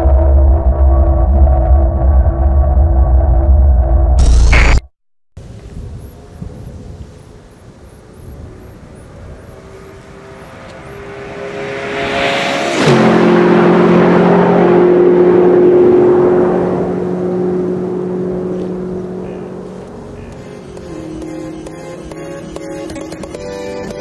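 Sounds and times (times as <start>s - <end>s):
car passing at speed: 8.0s - 21.3s.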